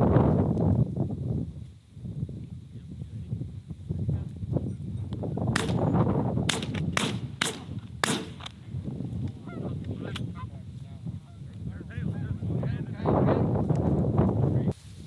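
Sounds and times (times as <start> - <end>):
shotgun shots: 5.6 - 8.6.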